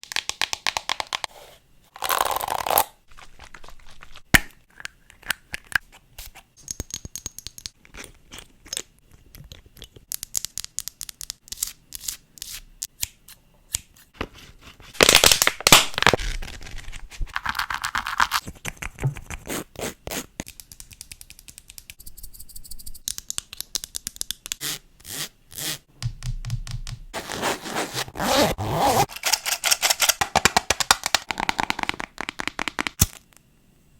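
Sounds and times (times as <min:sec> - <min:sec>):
scraping and scratching: 0:27.1 - 0:31.8.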